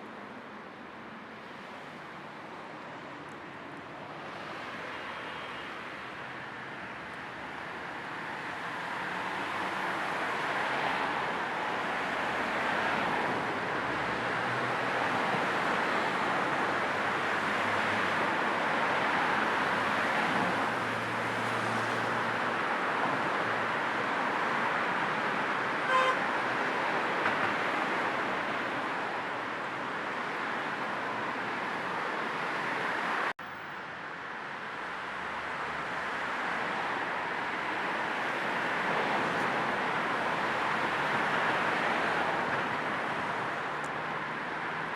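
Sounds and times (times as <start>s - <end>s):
car road and tyre noise: 0.0s - 44.9s
short car horn toot: 25.9s - 26.2s.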